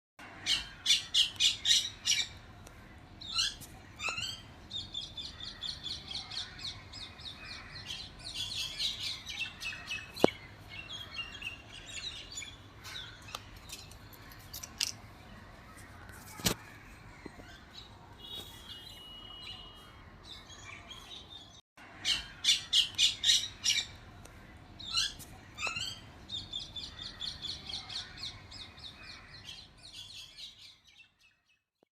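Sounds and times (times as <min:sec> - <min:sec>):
parrots squawking: 0:22.0 - 0:26.0.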